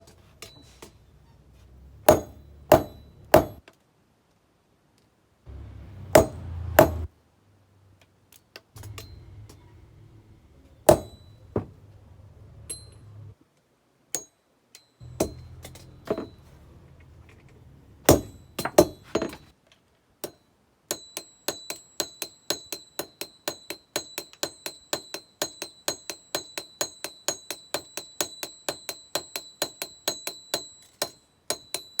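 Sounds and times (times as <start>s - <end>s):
hammer striking metal on anvil: 2.1s - 3.6s, 5.5s - 7.1s, 8.8s - 9.5s, 10.9s - 11.7s, 14.2s - 16.4s, 18.1s - 19.4s, 20.2s - 32.0s
low steady hum: 8.8s - 13.4s.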